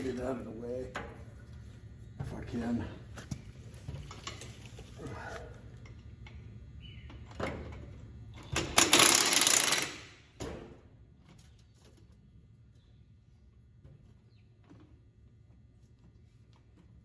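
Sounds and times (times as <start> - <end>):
clanks of metal parts: 7.3 - 10.6
power tool burst: 8.7 - 10.1.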